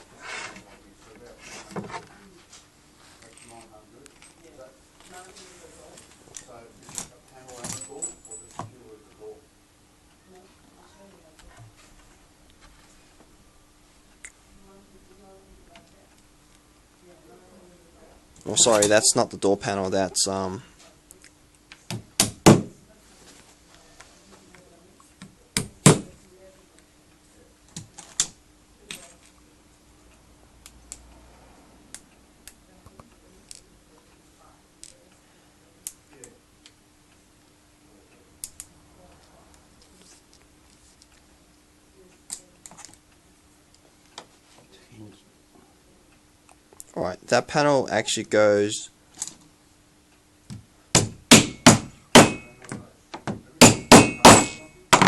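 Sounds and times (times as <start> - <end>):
hammer knocking on wooden panel: 21.9 - 22.7, 51.0 - 52.4, 53.2 - 55.0.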